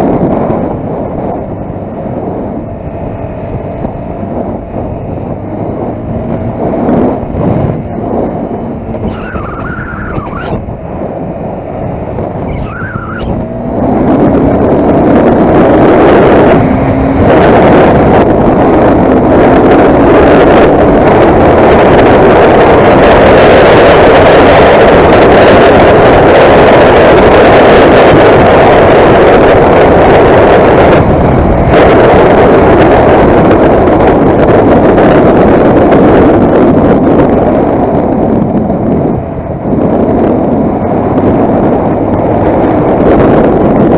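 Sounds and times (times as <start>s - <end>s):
wind rush: 0.0s - 43.9s
motorcycle engine: 1.6s - 20.0s.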